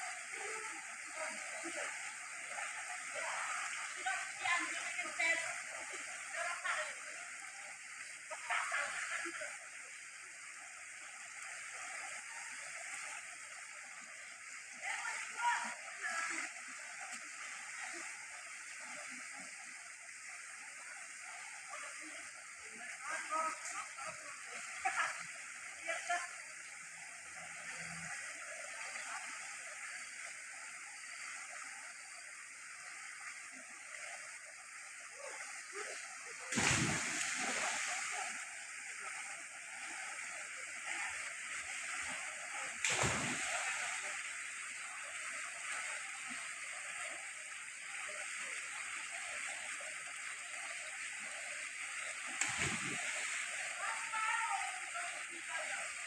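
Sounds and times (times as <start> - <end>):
floodwater rushing: 0.0 - 21.0, 33.4 - 56.0.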